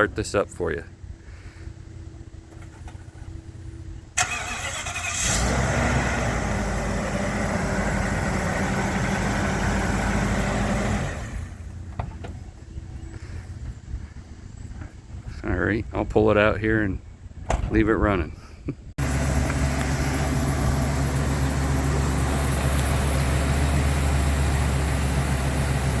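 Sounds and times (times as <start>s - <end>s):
truck engine running and idling: 1.9s - 15.3s, 19.0s - 26.0s.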